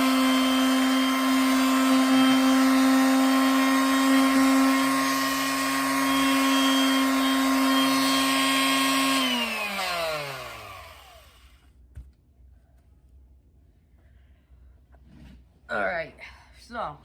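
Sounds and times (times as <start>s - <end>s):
electric sander motor whine: 0.0s - 11.6s.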